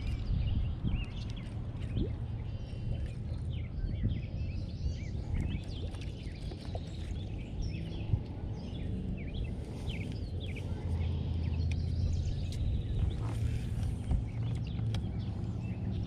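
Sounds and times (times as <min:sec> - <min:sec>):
songbirds chirping and warbling: 0:00.0 - 0:16.0
steady low rumble: 0:00.0 - 0:16.0.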